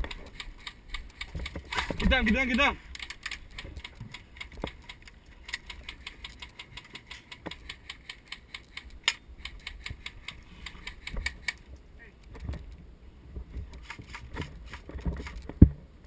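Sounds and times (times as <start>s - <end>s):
rapid sharp clicks: 0.0s - 11.7s.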